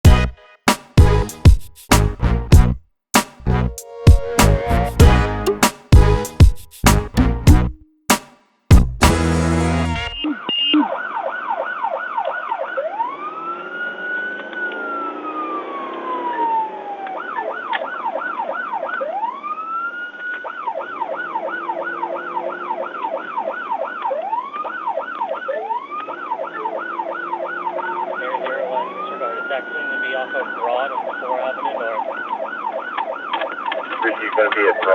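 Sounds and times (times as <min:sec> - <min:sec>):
police siren yelp and wail: 0:09.3 - 0:34.9.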